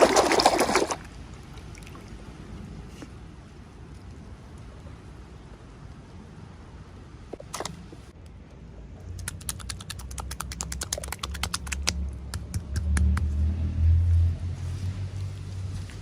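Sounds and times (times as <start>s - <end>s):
low rumble: 11.8s - 16.0s.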